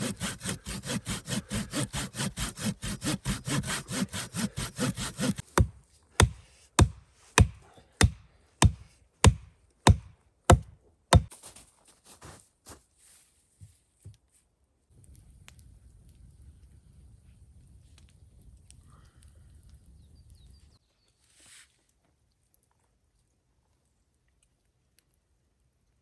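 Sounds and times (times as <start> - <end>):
hand saw cutting wood: 0.0 - 10.0
chopping blows on wood: 0.1 - 11.4.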